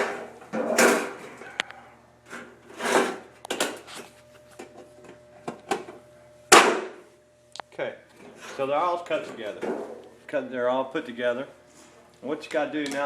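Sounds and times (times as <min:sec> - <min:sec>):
sheet metal scraping: 0:02.7 - 0:03.2.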